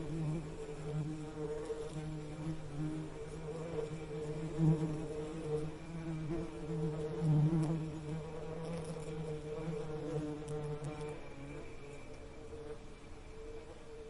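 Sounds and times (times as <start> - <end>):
bee buzzing: 0.0 - 14.0.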